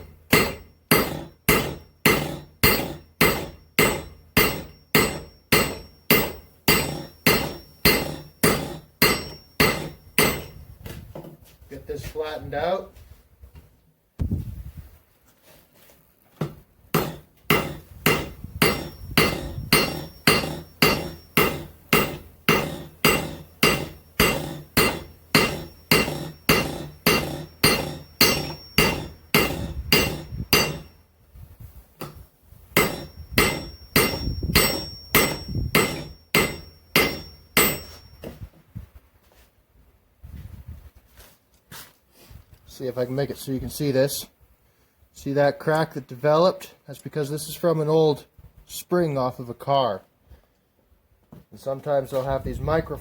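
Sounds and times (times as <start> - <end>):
hammer striking steel on anvil: 0.0 - 10.7, 16.4 - 31.0, 32.0 - 38.5.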